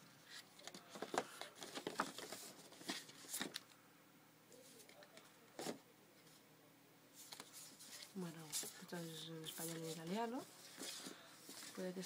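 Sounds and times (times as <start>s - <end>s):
paper and cardboard rustling: 0.3s - 3.6s, 7.2s - 12.0s.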